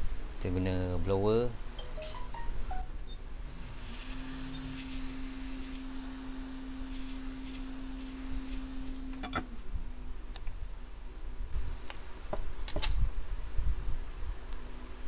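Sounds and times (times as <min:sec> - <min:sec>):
hot-air blower humming: 0:03.6 - 0:10.2.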